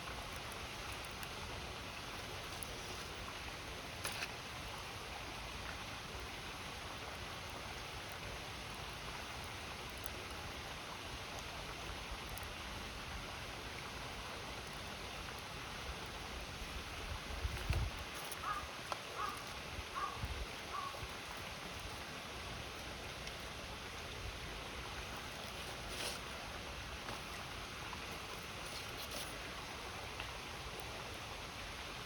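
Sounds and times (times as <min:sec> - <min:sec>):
campfire crackling: 0:00.0 - 0:32.0
river water rushing: 0:18.0 - 0:32.0.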